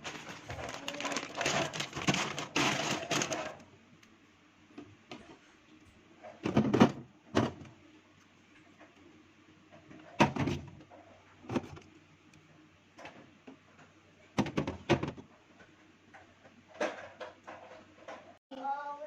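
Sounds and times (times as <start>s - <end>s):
items knocking in a refrigerator: 0.0s - 3.6s, 6.3s - 7.7s, 9.8s - 10.8s, 11.4s - 11.8s, 14.4s - 15.3s.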